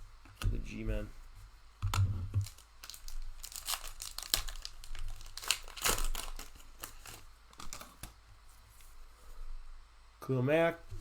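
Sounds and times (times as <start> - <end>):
plastic wrapper crinkling and tearing: 2.4 - 8.2.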